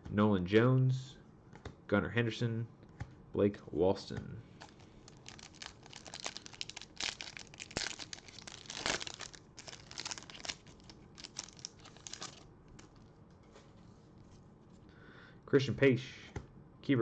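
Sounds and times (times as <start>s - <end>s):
foil wrapper tearing and crinkling: 4.6s - 13.0s.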